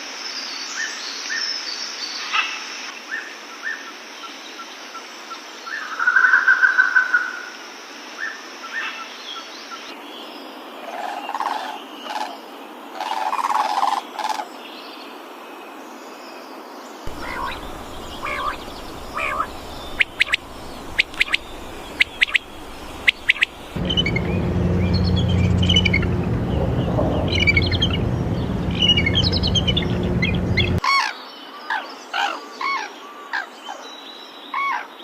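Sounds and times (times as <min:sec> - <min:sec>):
bird calls and chirps: 0:17.1 - 0:35.0.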